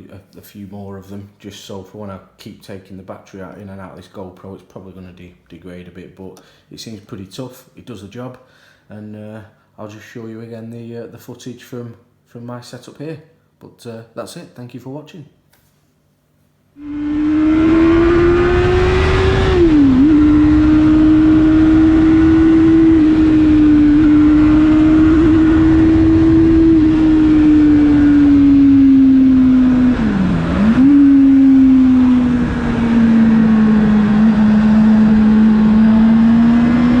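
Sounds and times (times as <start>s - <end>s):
wind noise: 16.8s - 36.0s
motorcycle engine running: 16.8s - 37.0s.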